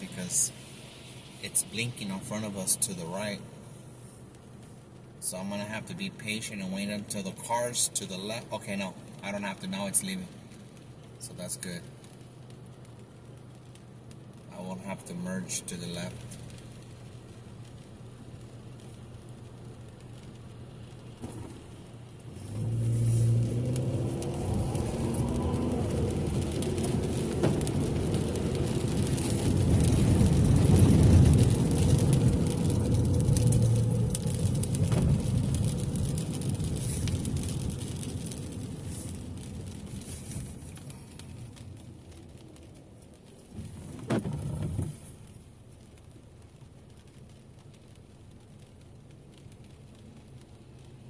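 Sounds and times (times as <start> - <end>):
car engine and road noise: 0.0 - 51.0
low rumble: 16.1 - 45.4.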